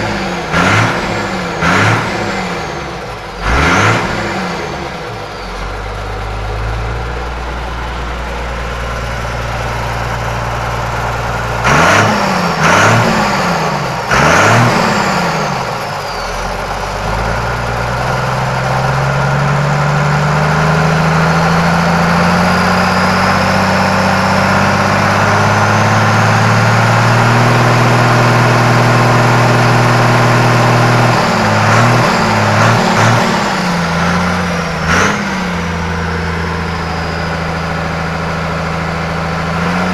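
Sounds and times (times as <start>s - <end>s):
tractor diesel engine revving: 0.0s - 39.9s.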